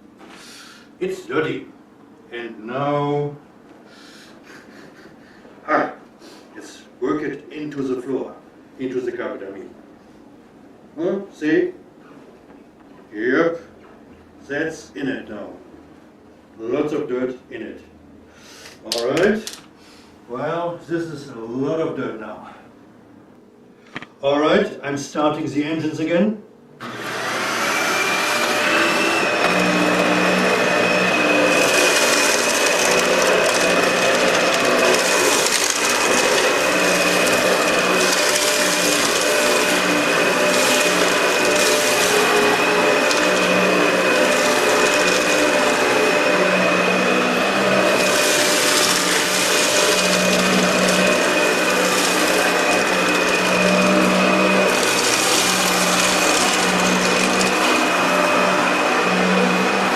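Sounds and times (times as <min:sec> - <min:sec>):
vacuum brush hissing on carpet: 0:26.8 - 0:59.9
vacuum cleaner motor whine: 0:26.8 - 0:59.9.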